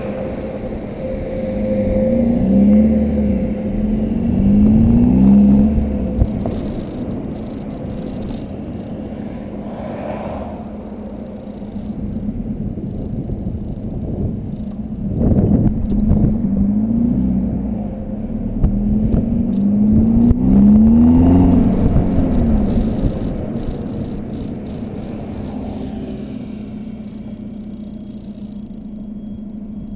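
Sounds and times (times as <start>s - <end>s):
diesel car engine accelerating: 0.0s - 29.9s.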